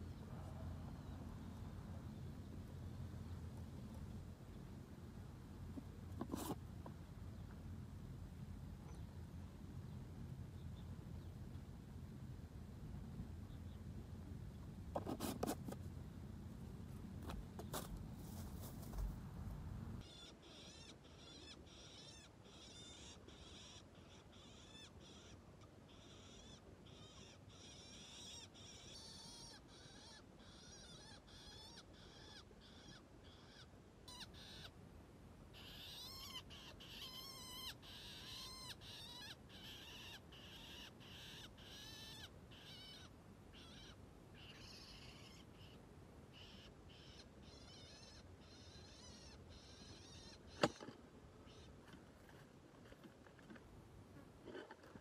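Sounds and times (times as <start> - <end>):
small birds chirping: 8.6 - 11.7, 13.3 - 34.8, 35.5 - 55.0
wavering bird calls: 20.0 - 34.8, 35.5 - 51.8.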